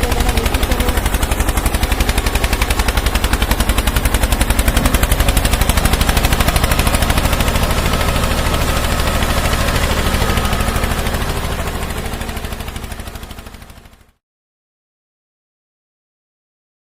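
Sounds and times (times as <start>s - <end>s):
tractor engine chugging: 0.0s - 14.2s.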